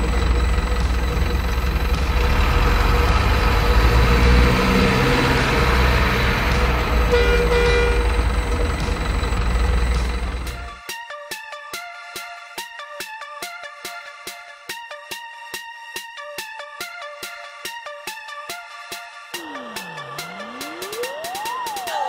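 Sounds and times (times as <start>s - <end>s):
diesel truck engine rumbling: 0.0s - 10.8s, 19.3s - 22.0s
truck horn toot: 5.6s - 8.8s.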